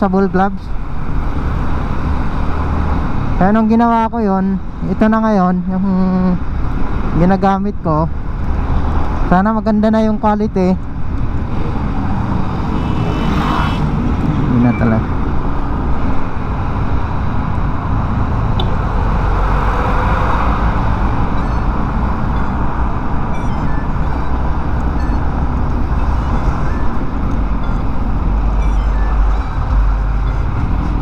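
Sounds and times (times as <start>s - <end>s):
road noise: 0.0s - 31.0s.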